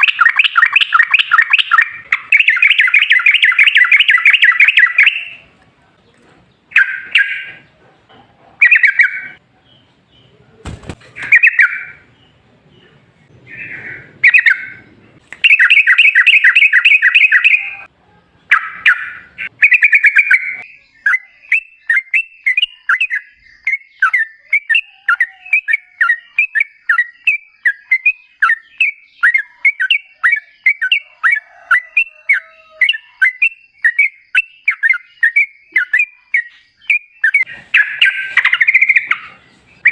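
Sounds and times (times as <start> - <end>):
bulbul singing: 0.0 - 5.6, 6.5 - 39.9.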